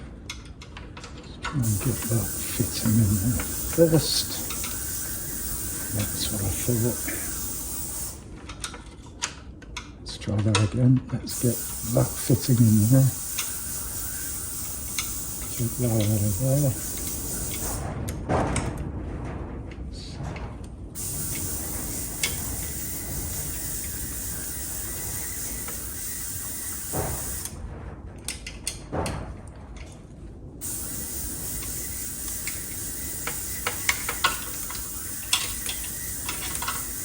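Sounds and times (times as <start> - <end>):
small metal parts clicking: 0.4 - 8.8, 11.3 - 17.9, 21.0 - 27.5, 30.6 - 37.0
steady hiss: 1.6 - 8.3, 11.3 - 18.0, 21.0 - 27.6, 30.6 - 37.0.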